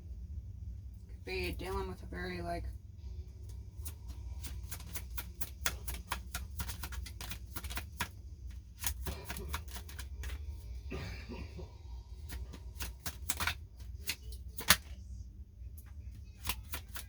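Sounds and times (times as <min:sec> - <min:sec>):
steady low hum: 0:00.0 - 0:17.0
cards being shuffled: 0:03.6 - 0:10.7, 0:12.2 - 0:15.0, 0:15.8 - 0:17.0.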